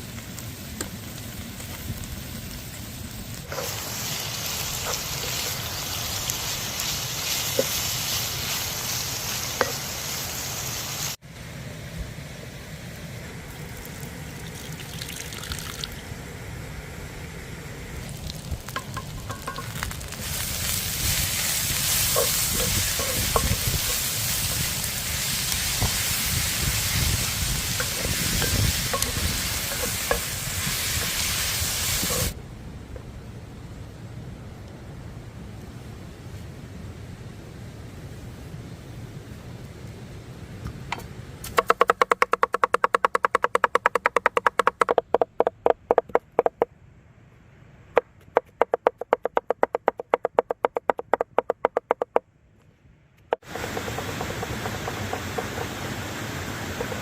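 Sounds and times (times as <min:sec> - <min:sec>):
food sizzling in a pan: 0:01.7 - 0:11.2, 0:18.1 - 0:32.4.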